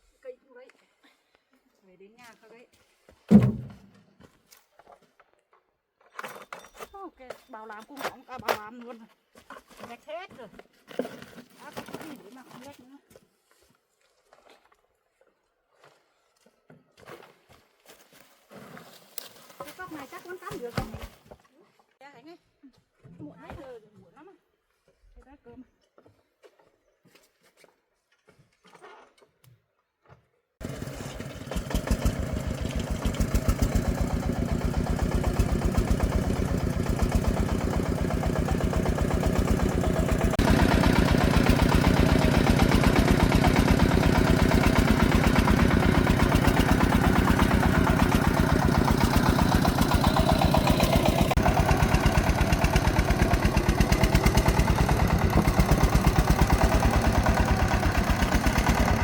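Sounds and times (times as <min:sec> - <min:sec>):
single-cylinder diesel engine running: 0:30.6 - 0:59.0.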